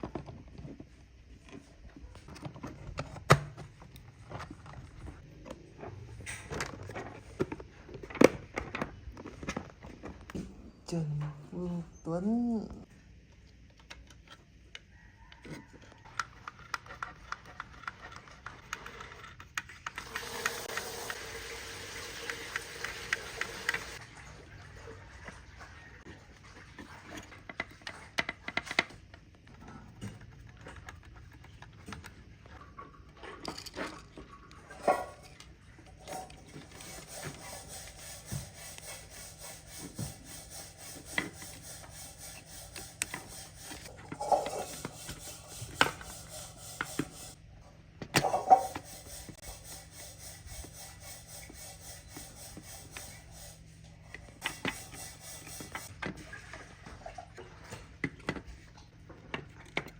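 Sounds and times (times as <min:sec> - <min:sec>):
hand rubbing and scraping surface: 0:36.1 - 0:47.4, 0:48.2 - 0:56.0.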